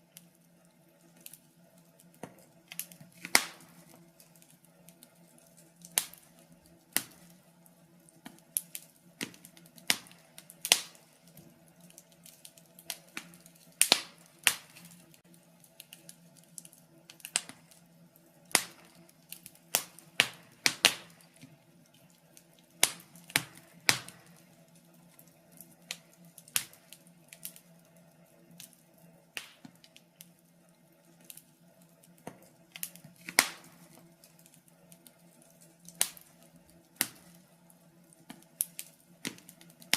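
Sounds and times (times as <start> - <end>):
faint steady hum: 0.0 - 39.9
wood fire crackling: 0.0 - 39.9.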